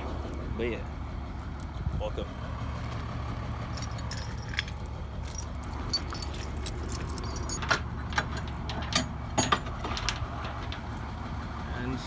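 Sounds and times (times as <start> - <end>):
truck engine idling: 0.0 - 12.0
metal chain clinking and rattling: 3.5 - 11.1.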